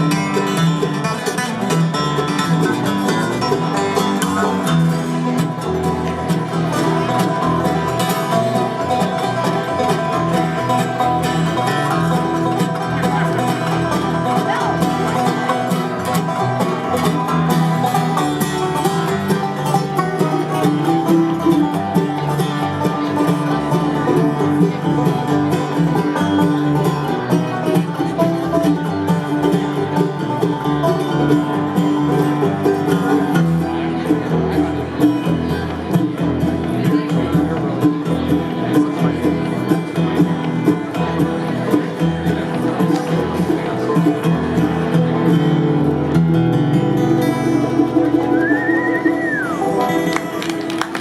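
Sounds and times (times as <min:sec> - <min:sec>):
bluegrass band playing: 0:00.0 - 0:51.0.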